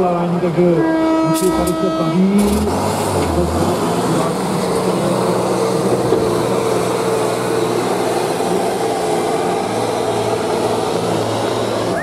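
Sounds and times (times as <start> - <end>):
high engine whine: 0.0 - 12.0
truck engine droning: 0.0 - 12.0.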